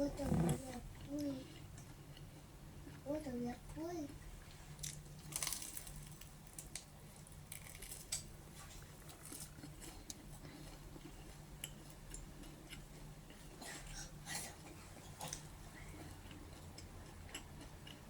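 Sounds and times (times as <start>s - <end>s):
crisp crunches: 4.8s - 6.7s
chewing noises: 4.8s - 18.0s.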